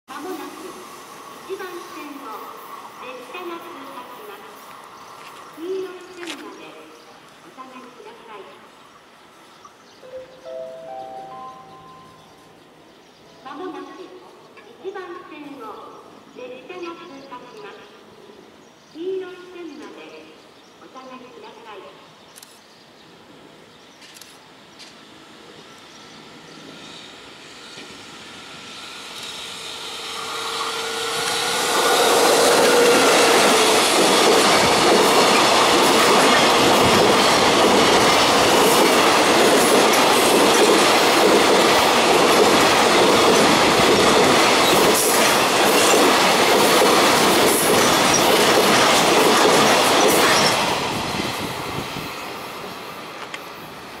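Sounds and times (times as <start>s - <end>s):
electric locomotive whine: 9.0s - 12.9s, 24.6s - 54.0s.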